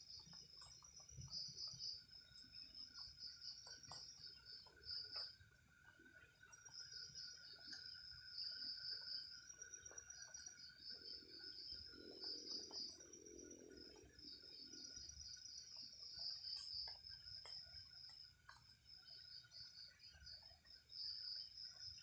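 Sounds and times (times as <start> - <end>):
insect high-pitched pulsed trill: 0.0 - 22.0
insect thin drone: 6.6 - 22.0.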